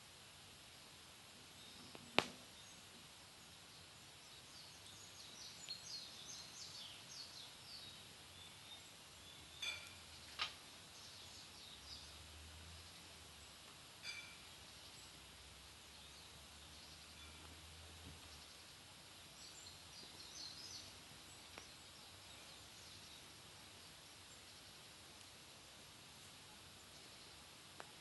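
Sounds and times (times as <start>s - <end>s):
faint steady fire hiss: 0.0s - 28.0s
small birds twittering: 1.3s - 28.0s
wood fire popping and snapping: 1.6s - 3.0s, 21.0s - 21.8s.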